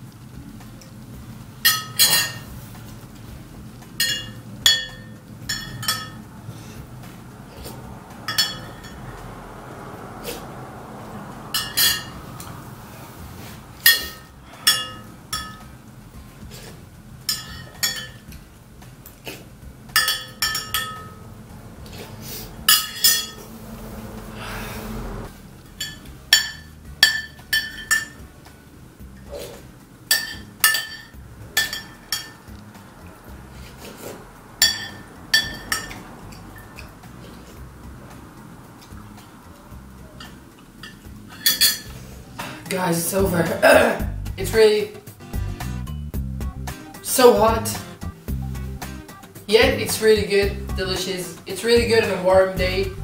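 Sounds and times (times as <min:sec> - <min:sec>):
metal utensils clinking on bowl: 0:01.6 - 0:02.5, 0:04.0 - 0:06.2, 0:08.3 - 0:09.0, 0:11.6 - 0:12.2, 0:13.8 - 0:15.8, 0:16.6 - 0:18.4, 0:19.9 - 0:21.2, 0:22.7 - 0:23.4, 0:25.6 - 0:28.2, 0:30.1 - 0:32.5, 0:34.6 - 0:37.6, 0:40.2 - 0:42.0.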